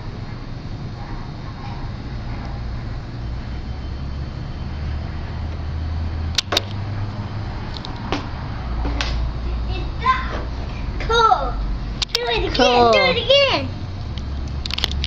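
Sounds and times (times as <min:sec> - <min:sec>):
steady low hum: 0:00.0 - 0:15.0
sharp clicks: 0:12.0 - 0:12.3.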